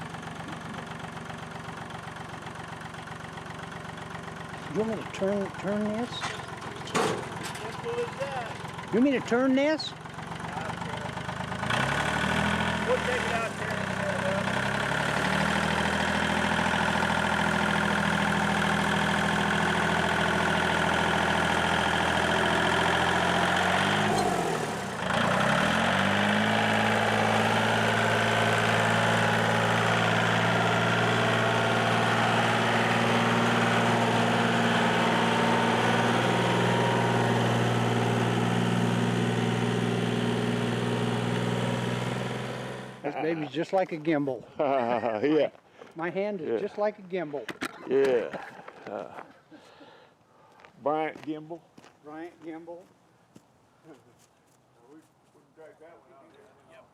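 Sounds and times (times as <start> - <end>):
engine idling: 0.0 - 43.5.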